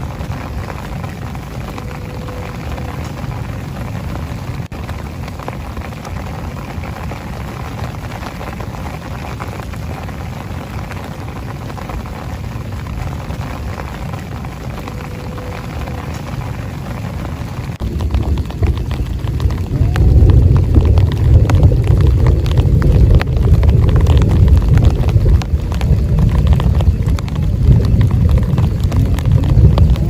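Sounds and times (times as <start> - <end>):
deep low rumble: 0.0 - 30.0
heavy rain falling: 0.0 - 30.0.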